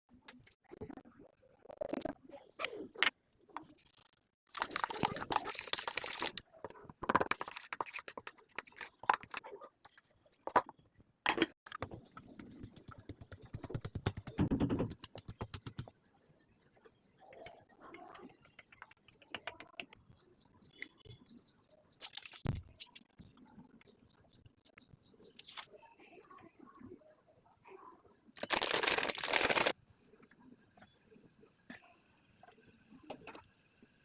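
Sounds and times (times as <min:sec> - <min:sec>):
rustling or pouring: 0:03.9 - 0:06.4, 0:28.4 - 0:29.7.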